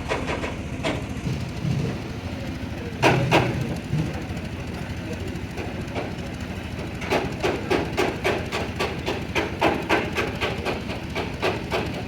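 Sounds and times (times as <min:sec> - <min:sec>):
hand hammer striking metal: 0:07.0 - 0:12.0.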